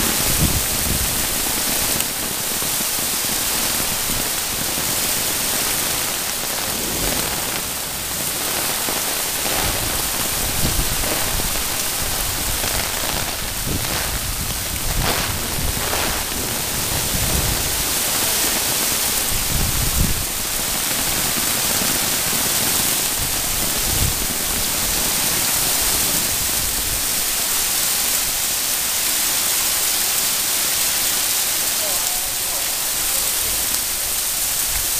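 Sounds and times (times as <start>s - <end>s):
heavy rain hissing: 0.0s - 34.9s
low rumbles: 9.2s - 18.0s.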